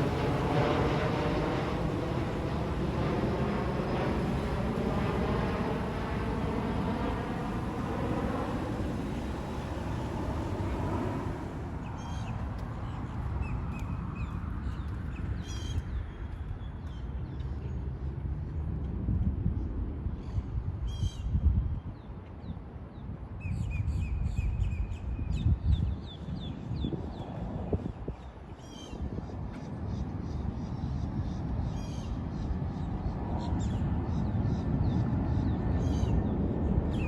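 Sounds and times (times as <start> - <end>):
jet airliner passing: 0.0 - 15.6, 26.9 - 37.0
steady low rumble: 0.0 - 16.8.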